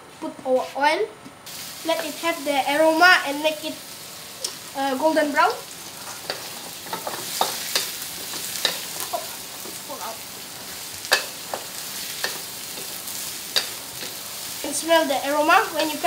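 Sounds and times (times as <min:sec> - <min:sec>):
food sizzling in hot oil: 0:01.5 - 0:16.0
spatula scraping and knocking wok: 0:05.7 - 0:14.8.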